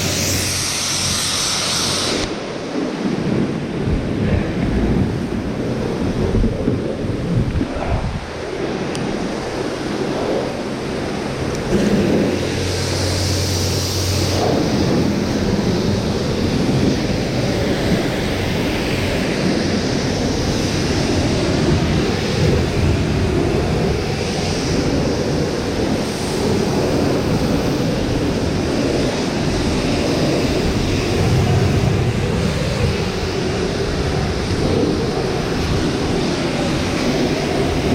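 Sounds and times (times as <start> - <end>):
pressure washer spraying water: 0.0 - 2.6, 10.6 - 19.6.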